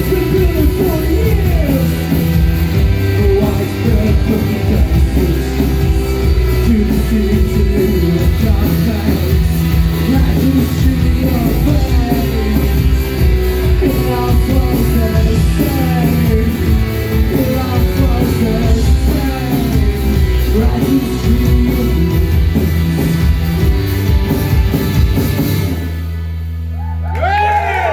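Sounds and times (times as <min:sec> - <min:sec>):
rock band playing loudly: 0:00.0 - 0:26.7.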